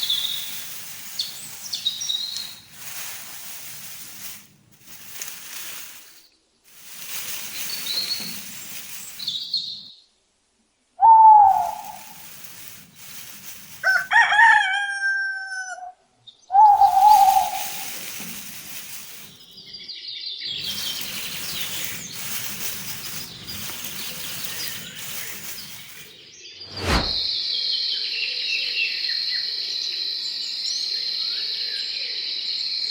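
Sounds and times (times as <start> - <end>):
small birds chirping: 0.0 - 10.0, 16.4 - 26.8
rooster crowing: 13.8 - 16.0.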